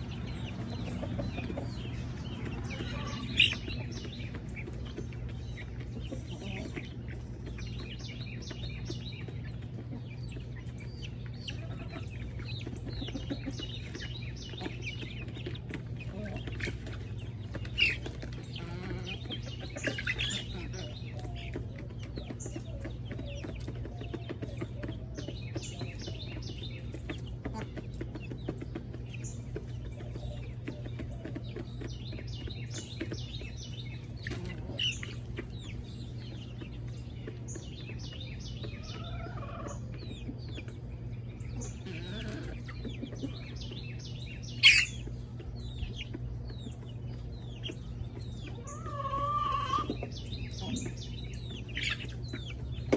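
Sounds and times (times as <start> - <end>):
bird chirps: 0.0 - 15.6, 29.2 - 52.9
chickens clucking: 0.0 - 52.9
steady low hum: 0.0 - 52.9.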